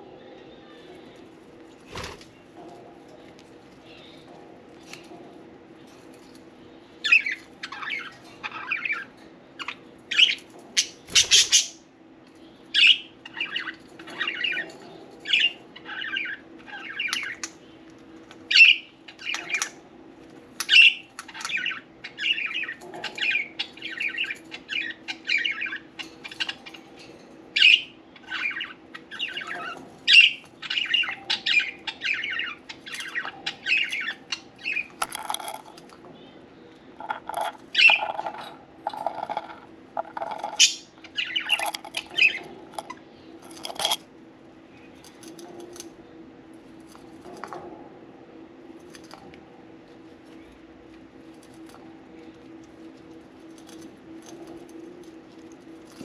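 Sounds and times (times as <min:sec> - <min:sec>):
budgerigars chirping: 0:07.0 - 0:11.8, 0:27.6 - 0:35.6, 0:37.0 - 0:44.0.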